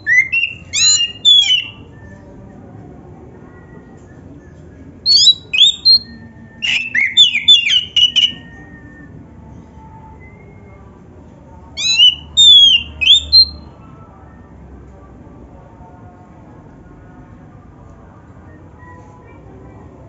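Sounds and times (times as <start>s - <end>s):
bird singing whistled notes: 0.0s - 2.0s, 5.1s - 9.1s, 11.8s - 13.7s.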